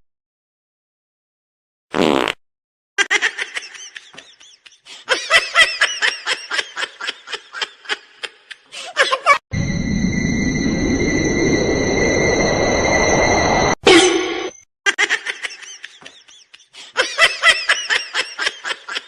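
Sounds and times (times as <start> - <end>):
droning sound effect with high tones: 9.5 - 14.6
rapid chopped laughter: 14.9 - 19.0.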